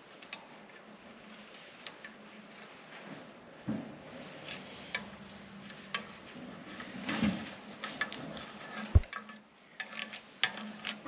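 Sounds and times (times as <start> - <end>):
tape peeling: 5.7 - 11.0.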